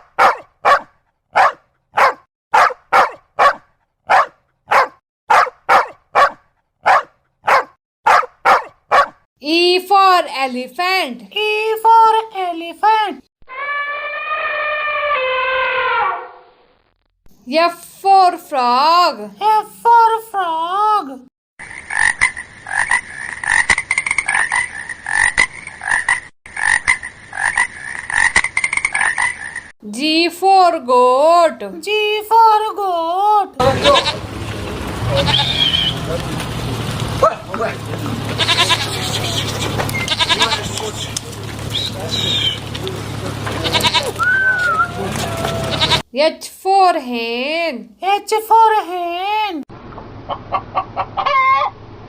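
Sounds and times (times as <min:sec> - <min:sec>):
dog barking: 0:00.0 - 0:09.2, 0:37.2 - 0:37.6
frog croaking: 0:21.6 - 0:29.7.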